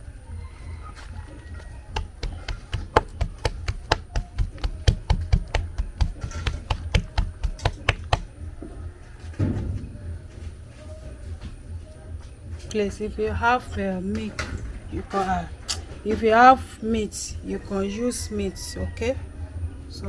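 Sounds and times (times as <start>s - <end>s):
knife knocking on cutting board: 1.9s - 8.3s.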